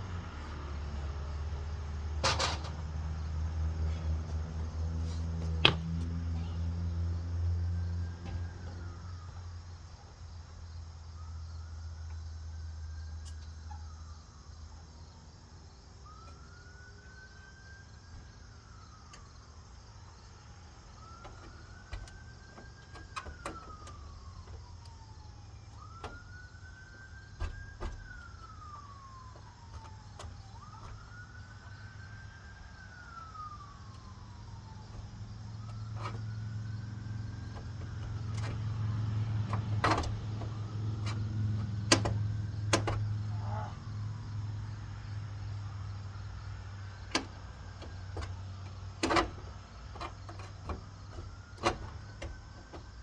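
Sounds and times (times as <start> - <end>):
sharp knocks: 5.5 - 6.1
siren wailing: 20.9 - 44.2.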